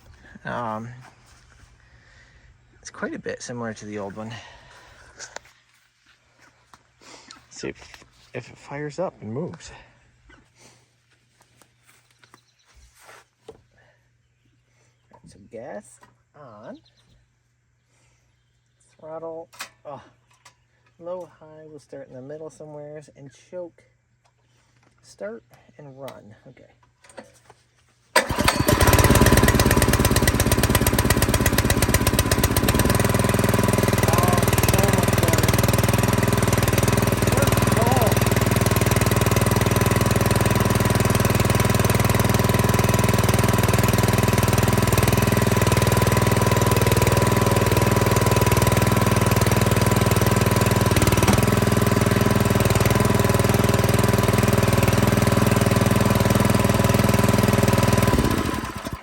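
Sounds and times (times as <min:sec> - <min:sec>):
small engine running: 0:28.2 - 0:59.0.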